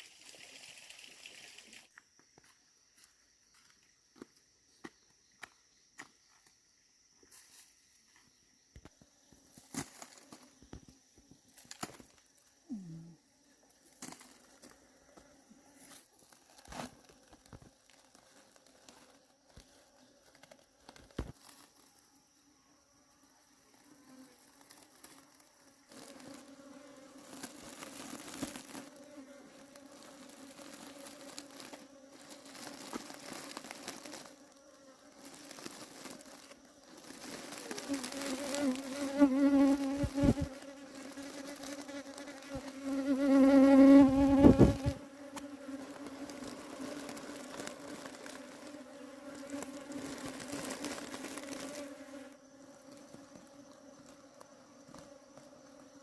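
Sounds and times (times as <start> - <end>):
bees buzzing: 23.8 - 56.0.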